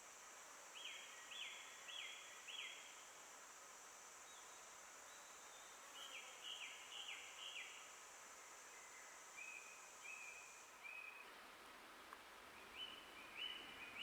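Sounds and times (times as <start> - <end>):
high insect drone: 0.0 - 11.2
songbird singing: 12.5 - 14.0.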